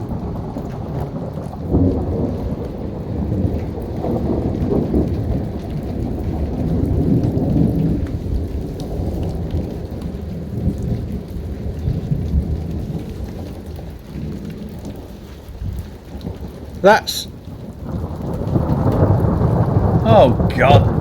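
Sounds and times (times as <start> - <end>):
steady rain falling: 0.0 - 21.0
rolling thunder: 17.6 - 21.0.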